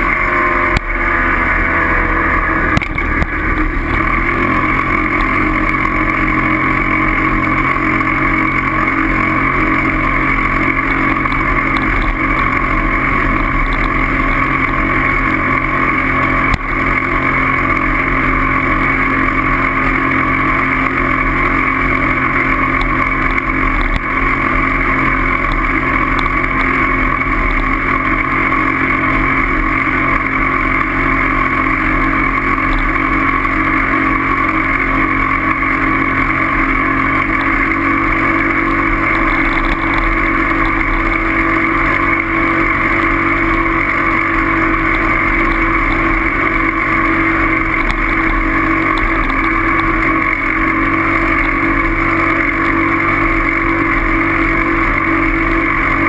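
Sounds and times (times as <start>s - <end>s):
motor running steadily: 0.0s - 56.0s.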